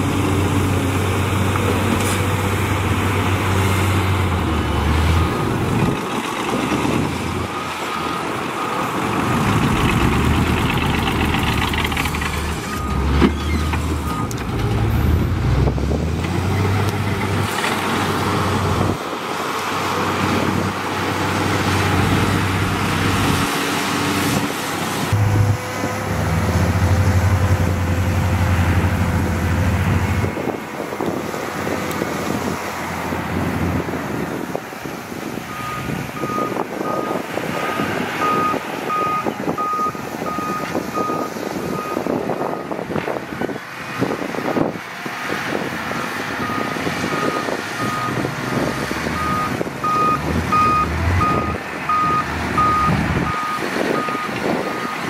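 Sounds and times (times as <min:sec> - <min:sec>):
diesel machinery engine rumble: 0:00.0 - 0:55.0
reversing alarm beeping: 0:35.5 - 0:42.8, 0:49.2 - 0:55.0.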